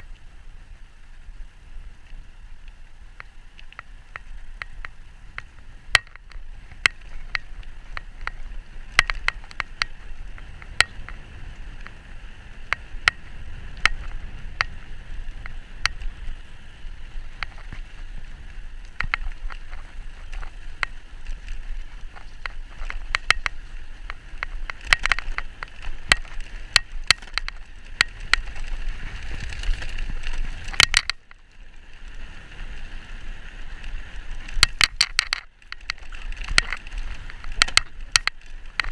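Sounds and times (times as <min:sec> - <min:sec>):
bike tyre and wind noise: 0:00.0 - 0:38.9
sharp clicks and rattles: 0:03.2 - 0:11.2, 0:18.8 - 0:31.4, 0:34.4 - 0:38.9.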